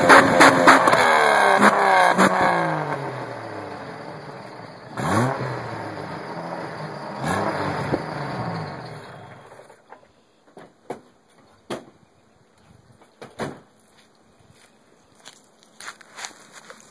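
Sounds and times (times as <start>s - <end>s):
engine revving: 0.0s - 9.8s.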